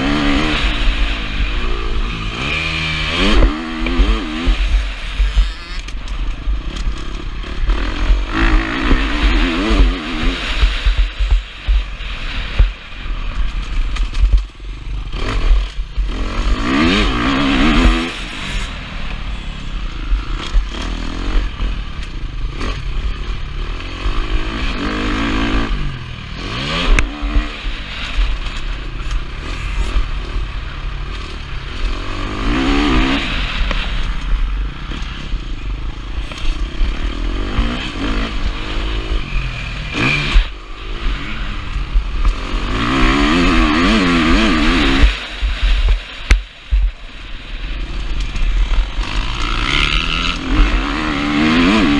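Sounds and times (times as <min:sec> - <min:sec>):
wind rumble on microphone: 0:00.0 - 0:18.8
motocross engine revving: 0:00.0 - 0:51.9.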